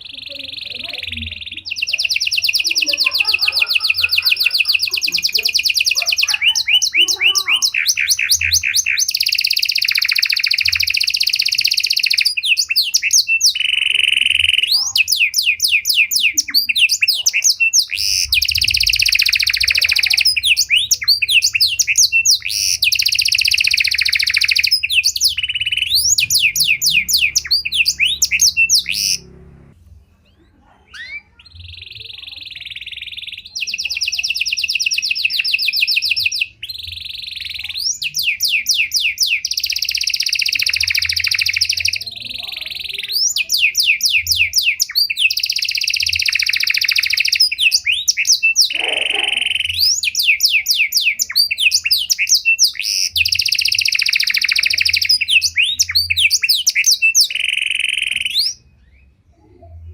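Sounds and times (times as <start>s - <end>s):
canary singing trills and whistles: 0.0s - 59.9s.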